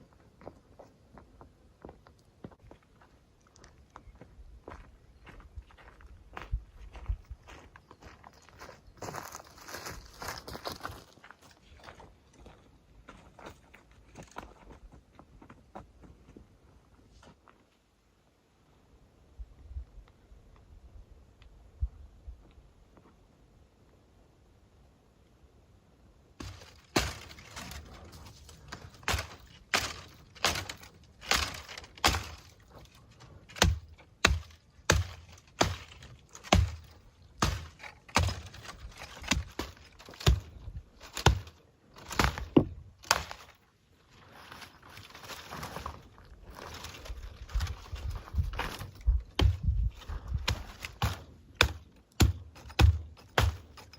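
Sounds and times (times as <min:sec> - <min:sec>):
wood thunks: 0:26.4 - 0:43.5, 0:48.7 - 0:53.9
crunching and rustling: 0:26.4 - 0:53.9.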